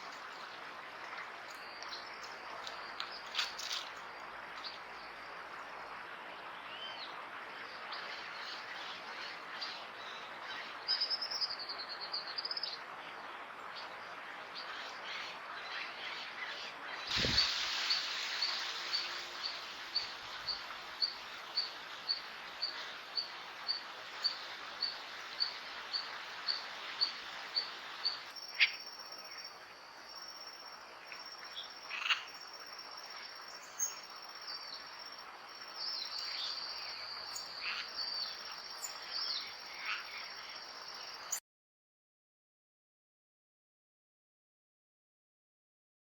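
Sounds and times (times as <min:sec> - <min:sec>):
steady hiss: 0:14.8 - 0:41.4.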